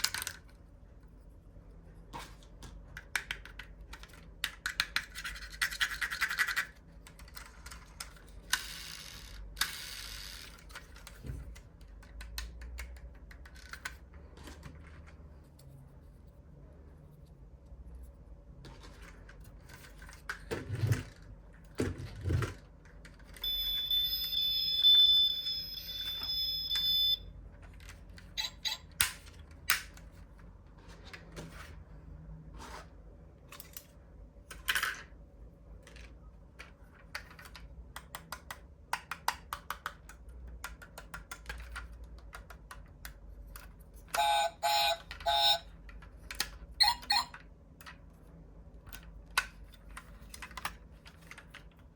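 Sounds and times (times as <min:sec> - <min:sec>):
clicks and knocks of toy cars: 0:00.0 - 0:00.6, 0:02.1 - 0:15.6, 0:18.6 - 0:23.4, 0:33.4 - 0:48.1, 0:48.8 - 0:51.9
short electronic beeps: 0:23.4 - 0:27.3.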